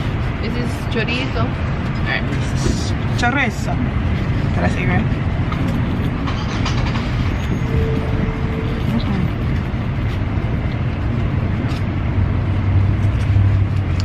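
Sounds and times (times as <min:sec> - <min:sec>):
street traffic rumble: 0:00.0 - 0:14.0
short steady tone: 0:07.4 - 0:09.4.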